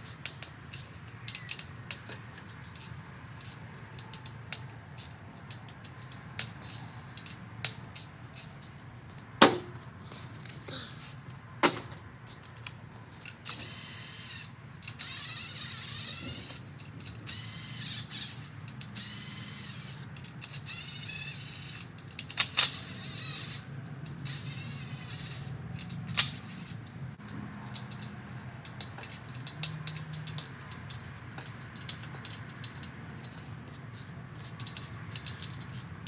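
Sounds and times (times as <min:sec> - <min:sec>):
hand ratchet clicking: 0:00.0 - 0:10.6, 0:11.2 - 0:35.9
sharp knocks of tools: 0:09.4 - 0:10.2, 0:11.6 - 0:12.1.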